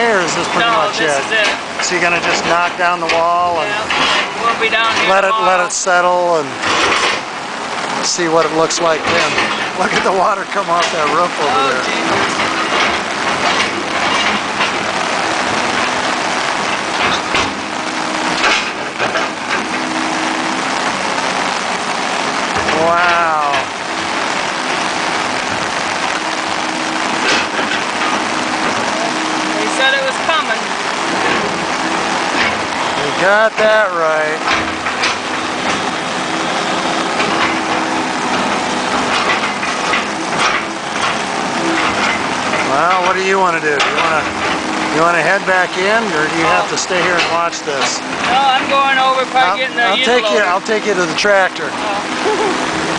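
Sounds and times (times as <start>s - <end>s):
faint engine running: 0.0s - 52.9s
heavy rain pouring: 0.0s - 52.9s.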